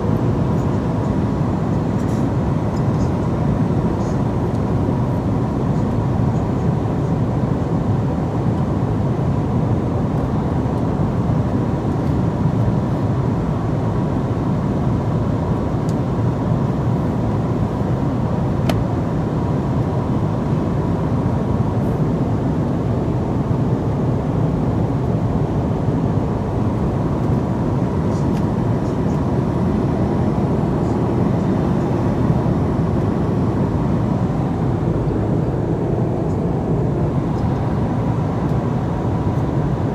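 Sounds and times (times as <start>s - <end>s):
airliner cabin rumble: 24.7s - 39.9s.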